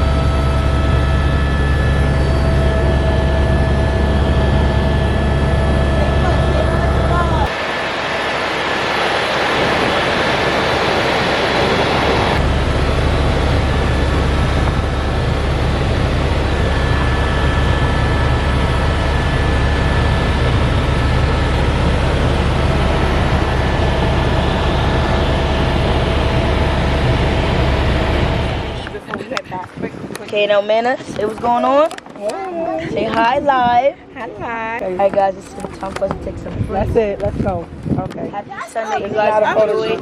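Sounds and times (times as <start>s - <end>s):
helicopter engine and rotor drone: 0.0s - 29.4s.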